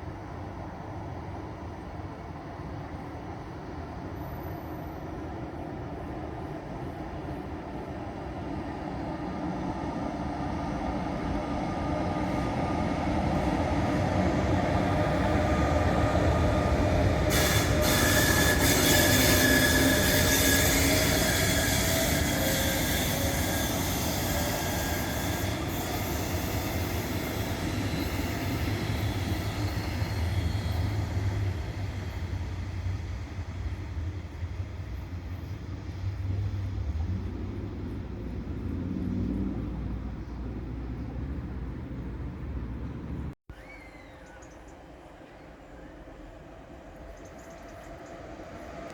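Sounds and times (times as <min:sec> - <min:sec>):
train passing: 0:00.0 - 0:48.9
train wheels squealing: 0:04.0 - 0:05.5, 0:10.2 - 0:36.1, 0:43.5 - 0:48.9.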